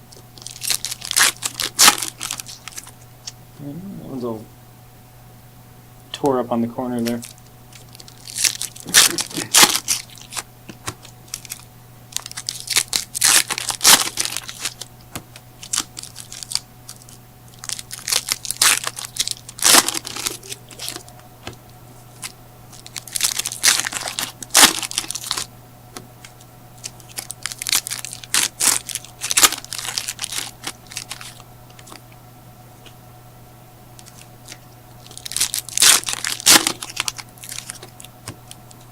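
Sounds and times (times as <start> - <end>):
foil wrappers tearing and crinkling: 0.4 - 2.9, 7.0 - 25.5, 26.2 - 32.0, 34.0 - 38.8
cards rustling: 7.0 - 32.0, 34.0 - 38.9.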